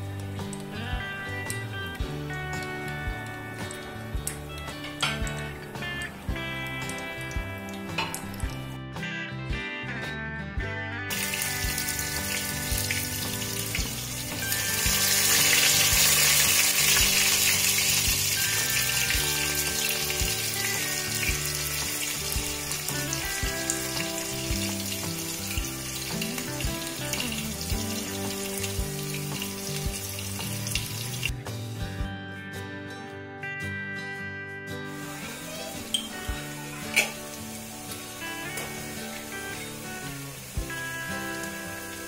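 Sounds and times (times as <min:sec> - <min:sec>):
background music: 0:00.0 - 0:42.0
vegetables sizzling in hot oil: 0:11.1 - 0:31.4, 0:34.9 - 0:42.0.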